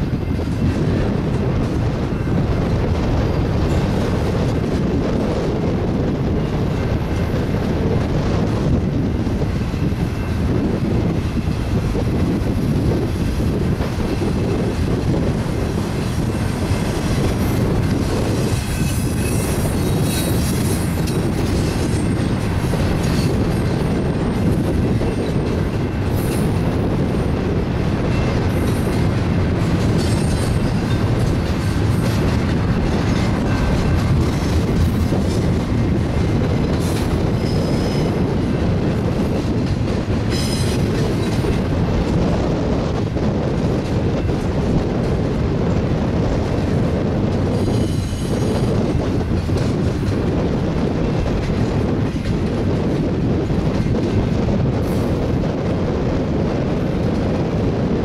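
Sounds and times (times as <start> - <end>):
train wheels rumbling on rails: 0.0 - 58.0
high-pitched wheel squeals: 18.6 - 21.0, 37.3 - 38.2, 47.5 - 48.6.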